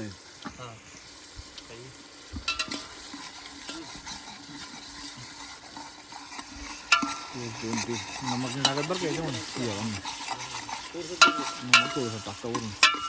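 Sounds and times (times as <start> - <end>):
onions sizzling in oil: 0.0 - 13.0
metal spoon scraping a pot: 2.1 - 13.0
spoon clanking against pot: 2.4 - 4.3, 6.3 - 13.0.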